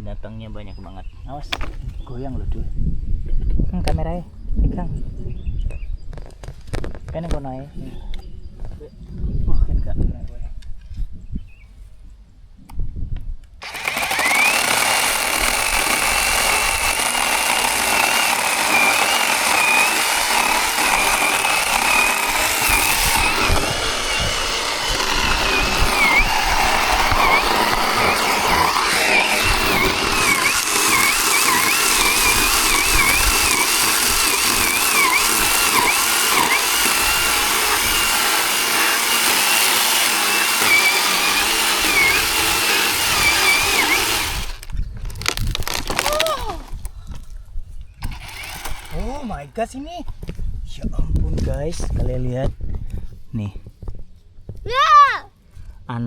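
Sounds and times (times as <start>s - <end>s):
chainsaw cutting wood: 13.6s - 46.9s, 48.0s - 49.4s.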